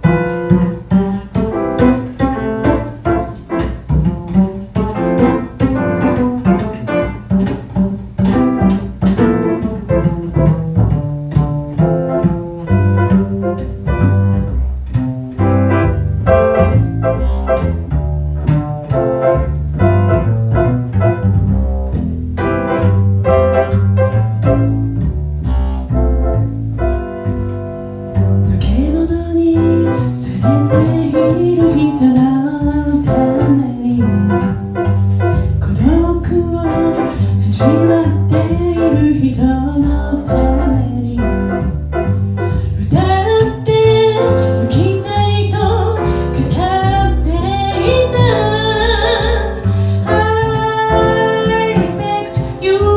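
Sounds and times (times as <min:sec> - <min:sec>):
double bass: 0:00.0 - 0:52.9
piano: 0:00.0 - 0:52.9.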